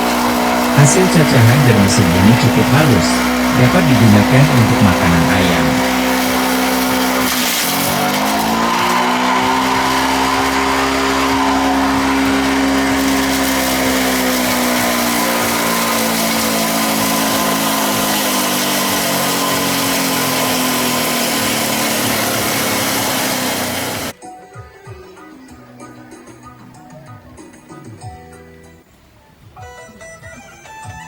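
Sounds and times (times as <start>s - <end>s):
blade chopping leaves: 0.0s - 24.1s
chopper motor humming: 0.0s - 24.1s.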